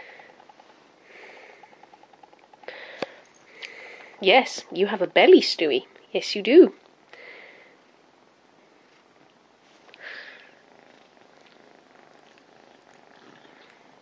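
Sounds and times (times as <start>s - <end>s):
cat purring: 9.9s - 14.0s.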